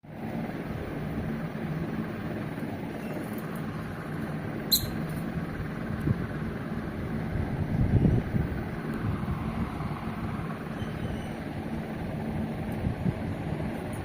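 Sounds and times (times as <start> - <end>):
steady low rumble: 0.1 - 14.0
small bird chirping: 4.6 - 5.2, 10.7 - 11.4.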